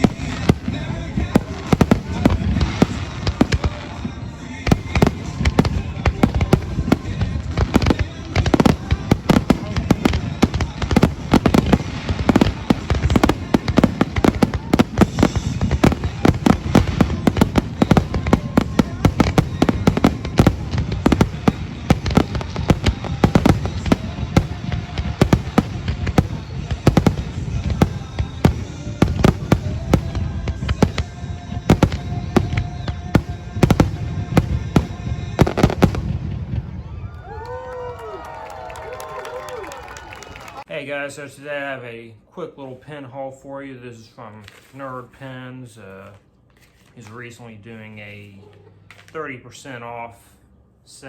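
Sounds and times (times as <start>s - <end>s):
fireworks bangs and pops: 0.0s - 37.6s.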